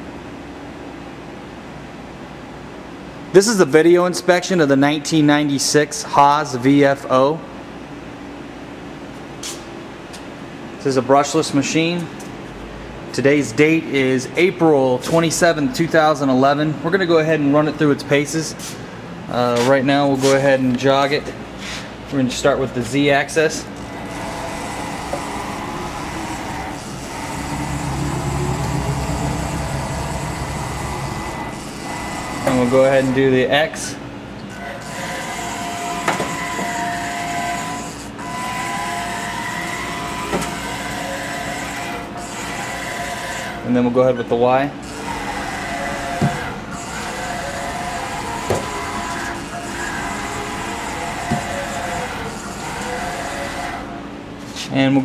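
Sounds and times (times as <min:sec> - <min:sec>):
machine servo hum and whine: 0:11.2 - 0:54.6.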